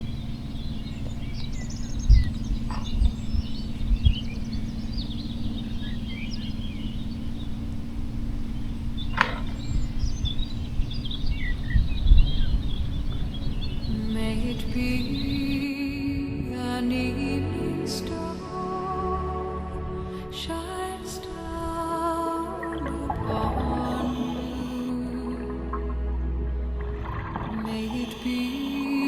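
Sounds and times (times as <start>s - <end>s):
small birds chirping and singing: 0.0s - 15.8s, 22.6s - 25.8s, 27.3s - 29.0s
low rumbles: 0.0s - 29.0s
steady low hum: 0.0s - 29.0s.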